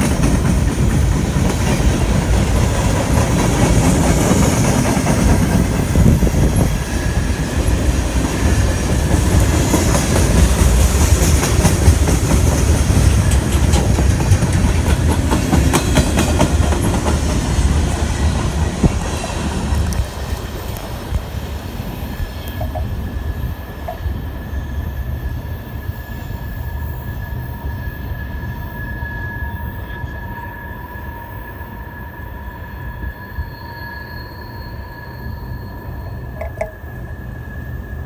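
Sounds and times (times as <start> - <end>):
freight train rumbling past: 0.0 - 38.0
wheels clicking over rail joints: 7.6 - 17.4, 36.3 - 37.2.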